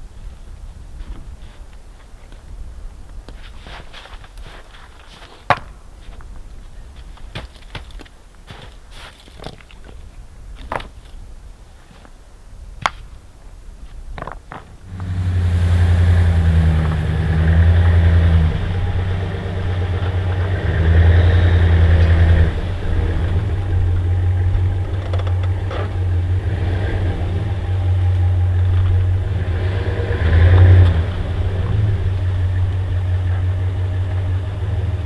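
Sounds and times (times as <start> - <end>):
vehicle engine starting and running: 14.8 - 35.0.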